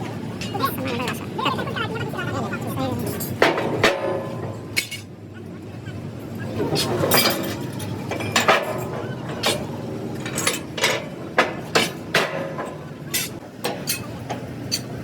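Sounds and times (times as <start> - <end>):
metallic clanks with ringing: 3.0 - 5.1, 6.8 - 15.0.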